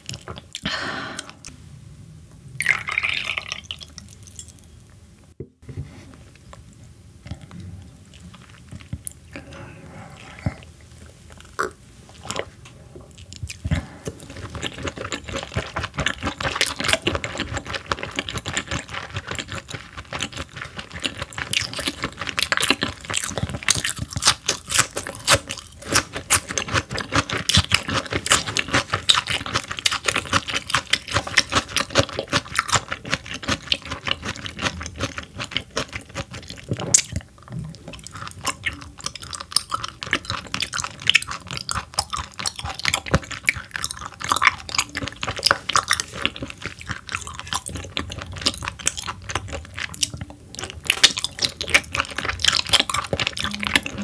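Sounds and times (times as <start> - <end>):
mouth clicks and smacks chewing: 13.1 - 54.0.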